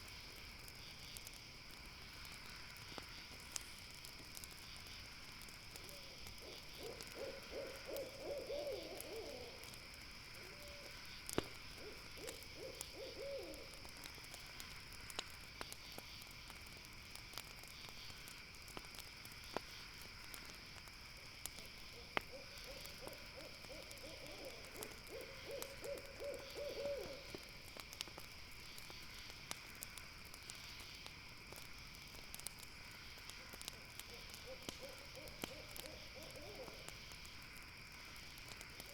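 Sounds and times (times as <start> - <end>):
campfire crackling and popping: 0.0 - 38.9
night insects chorus: 0.0 - 38.9
owl calling in quavering trills: 6.4 - 9.6, 11.8 - 13.7, 22.3 - 27.3.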